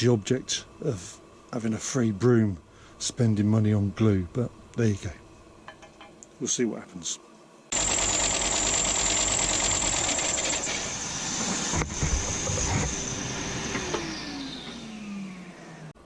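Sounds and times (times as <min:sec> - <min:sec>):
power sander whining: 0:07.8 - 0:16.0.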